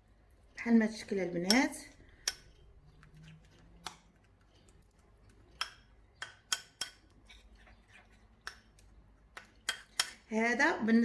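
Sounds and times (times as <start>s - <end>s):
spoon clicking against bowl: 5.6s - 7.0s.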